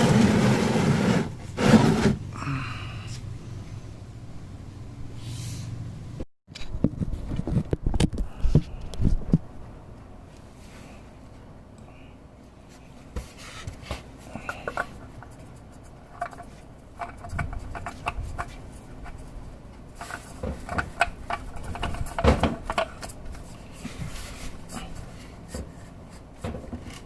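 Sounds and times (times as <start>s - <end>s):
clicks and knocks of hand work: 13.2s - 23.5s.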